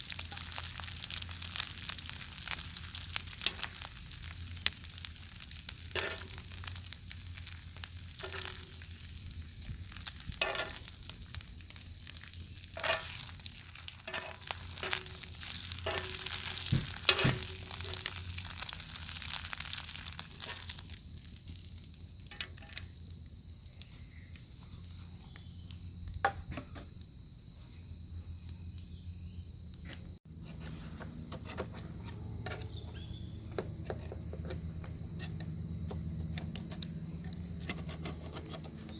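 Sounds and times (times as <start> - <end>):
bacon sizzling in a pan: 0.0 - 24.4
wood fire crackling: 0.0 - 27.2, 28.3 - 38.9.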